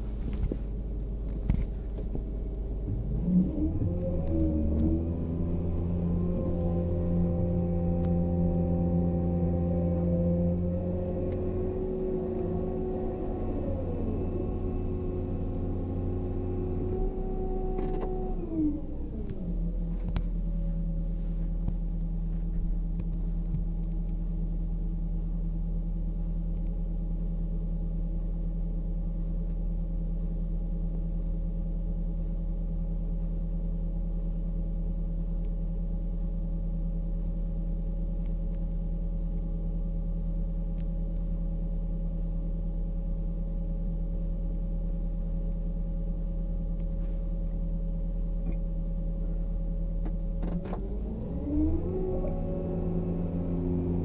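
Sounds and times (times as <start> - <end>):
excavator diesel engine: 0.0 - 23.0, 47.0 - 54.0.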